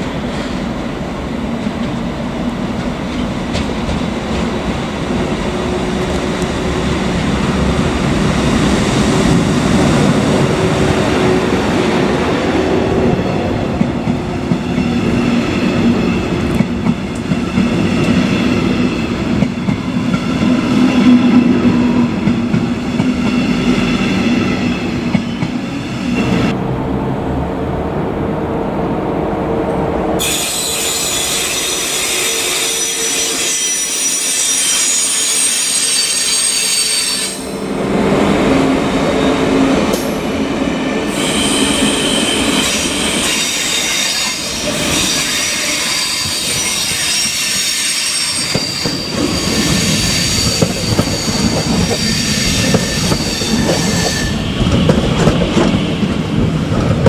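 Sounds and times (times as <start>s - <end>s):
train cars rumbling and clattering: 0.0s - 57.0s
train wheels squealing on rails: 22.8s - 26.5s, 30.2s - 37.7s, 38.7s - 56.4s.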